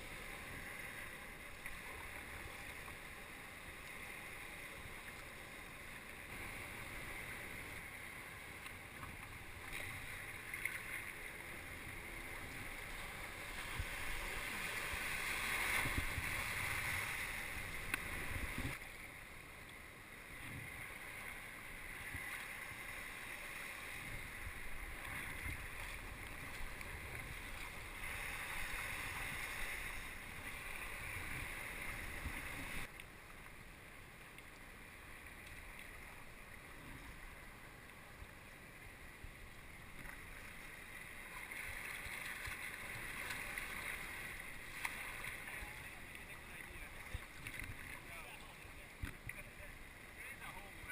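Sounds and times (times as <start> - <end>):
water splashing against a kayak: 0.0 - 50.9
wind buffeting the microphone: 14.9 - 18.8.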